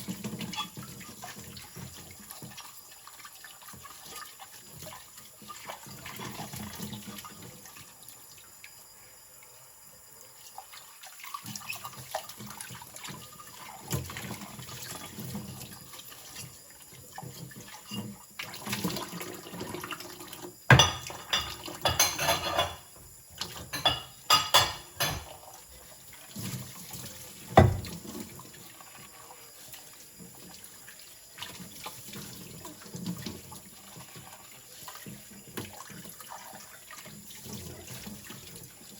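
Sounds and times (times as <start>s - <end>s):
water running from tap into sink: 0.0s - 8.2s, 10.4s - 38.9s
dishes clattering: 20.7s - 22.9s, 23.5s - 25.4s, 27.6s - 28.0s.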